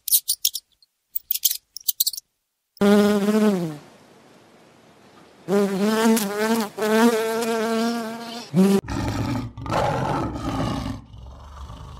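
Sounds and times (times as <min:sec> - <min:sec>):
bee buzzing: 0:02.8 - 0:03.9, 0:05.5 - 0:08.8
lion growling: 0:08.8 - 0:11.9.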